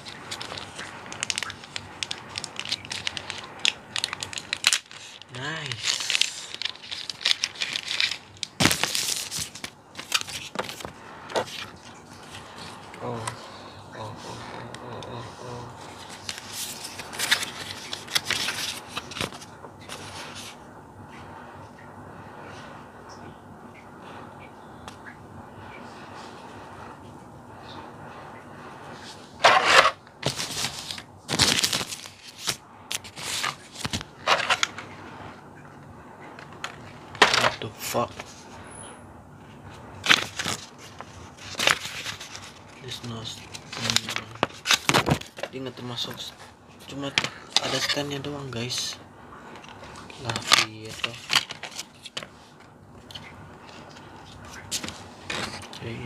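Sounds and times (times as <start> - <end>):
plastic tray crackling: 0.0 - 13.4, 40.0 - 49.0
plastic and paper packaging crinkling: 0.0 - 20.6, 29.4 - 35.0, 36.4 - 38.5, 39.5 - 56.0.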